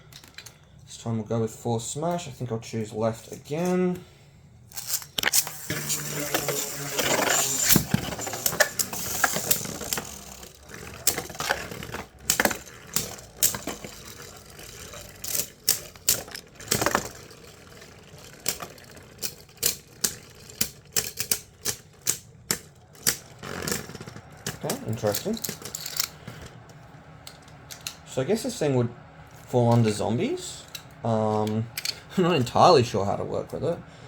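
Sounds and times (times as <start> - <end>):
spinning tops clacking: 4.7 - 26.1
faint whirr of spinning tops: 4.7 - 33.9.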